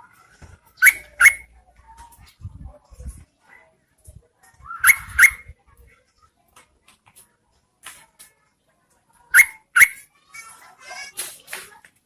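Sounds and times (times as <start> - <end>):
bird call chips: 0.8 - 1.5, 4.8 - 5.4, 9.4 - 10.0.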